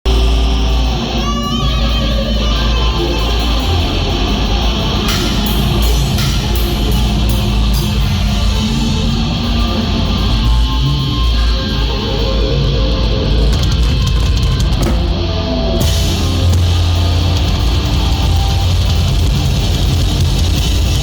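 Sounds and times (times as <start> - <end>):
live rock band playing: 0.1 - 21.0
cymbal strikes: 3.6 - 9.8.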